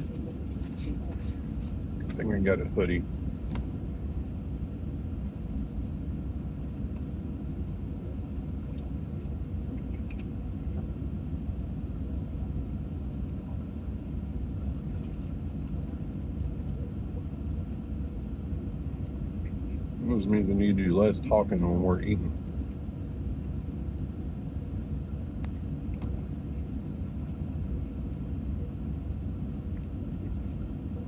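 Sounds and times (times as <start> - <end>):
faint steady hum: 0.0 - 31.0
low rumble: 0.0 - 31.0
faint small clicks: 9.8 - 10.3.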